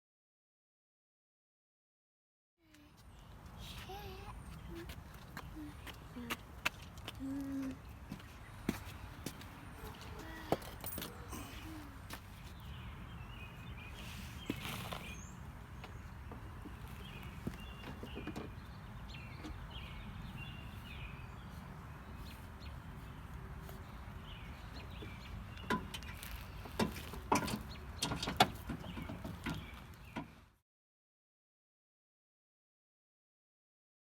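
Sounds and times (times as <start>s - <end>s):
small birds chirping: 2.6s - 30.6s
sharp clicks and knocks: 25.6s - 29.6s.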